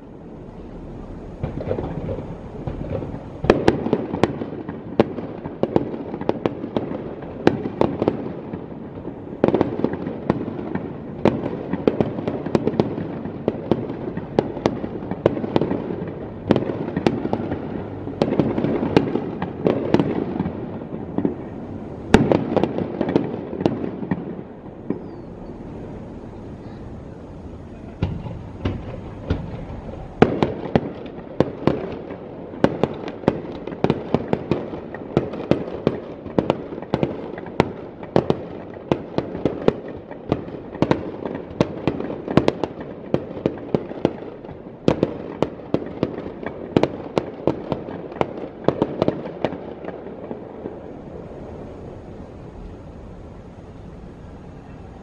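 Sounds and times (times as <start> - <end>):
firework shells bursting: 0.4 - 44.2.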